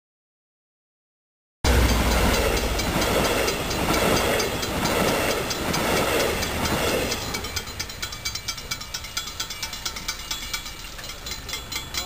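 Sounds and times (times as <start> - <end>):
train wheels clattering on rails: 1.7 - 12.0.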